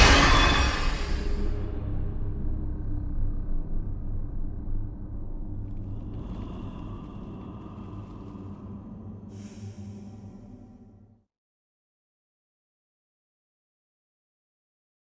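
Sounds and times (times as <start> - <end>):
hiss: 0.0 - 1.5, 9.3 - 10.7
deep rumble with low hum: 0.9 - 11.3.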